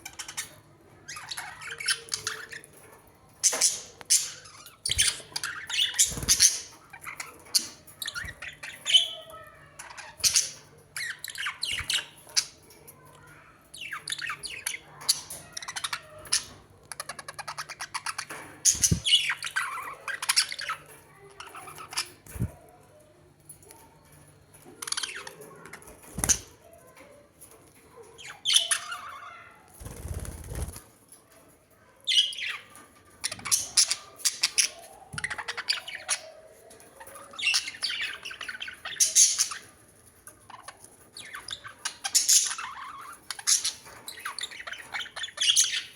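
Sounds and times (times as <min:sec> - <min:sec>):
bird chirps: 0:03.4 - 0:12.6, 0:13.3 - 0:22.6
birds squawking: 0:13.8 - 0:22.6.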